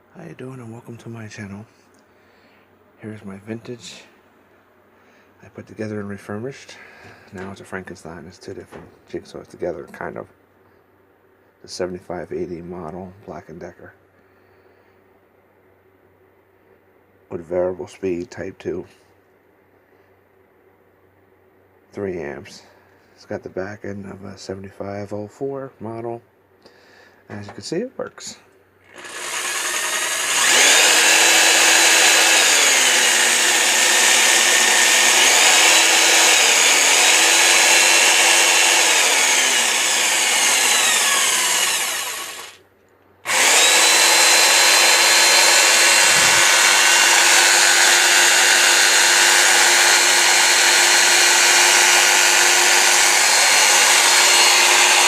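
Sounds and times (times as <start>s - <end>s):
jigsaw motor running: 28.9s - 42.6s, 43.3s - 55.0s.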